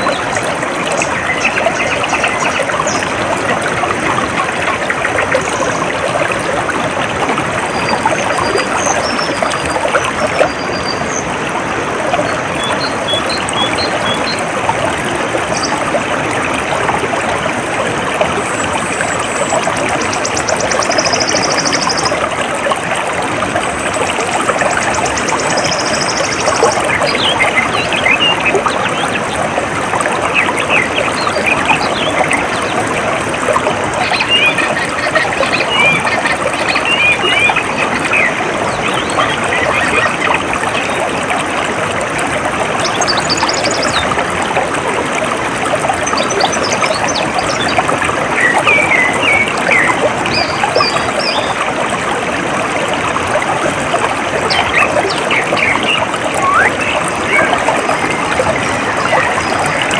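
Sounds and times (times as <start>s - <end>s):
water trickling: 0.0s - 59.9s
birds chirping: 12.2s - 14.4s, 18.4s - 22.2s, 33.9s - 41.0s, 54.4s - 59.9s.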